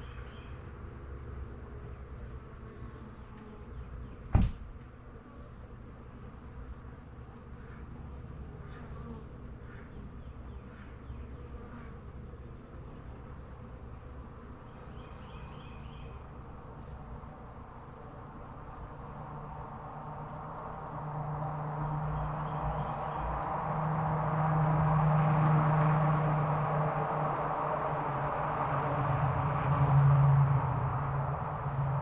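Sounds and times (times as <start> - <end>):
sharp knock: 4.3 - 4.6
bees buzzing: 5.0 - 28.5.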